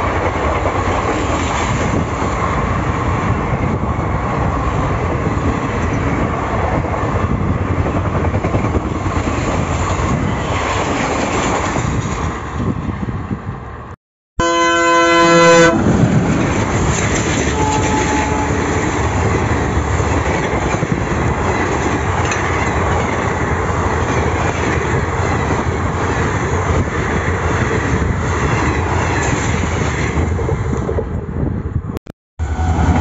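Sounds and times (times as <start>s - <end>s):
train wheels rumbling on rails: 0.0s - 13.7s, 15.6s - 33.0s
locomotive horn blast: 14.4s - 15.9s, 17.4s - 19.1s.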